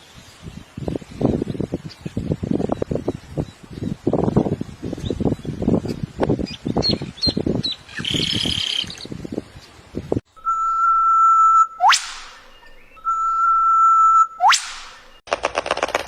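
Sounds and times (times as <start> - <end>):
high bird chirps: 6.4 - 9.1, 10.4 - 15.2
steady high tone: 10.3 - 15.1
bird wings flapping: 15.3 - 16.0.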